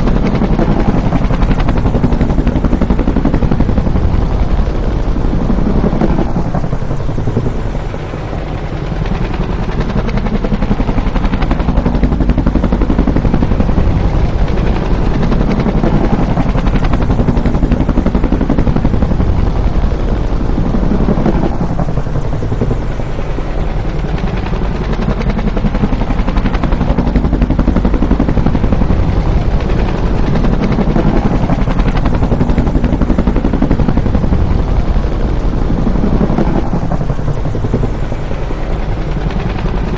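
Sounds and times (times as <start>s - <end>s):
helicopter flying by: 0.0s - 39.9s.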